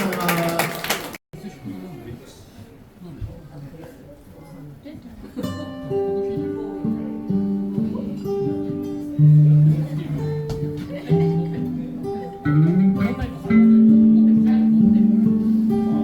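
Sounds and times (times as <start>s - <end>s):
instrumental guitar music: 5.4s - 16.0s.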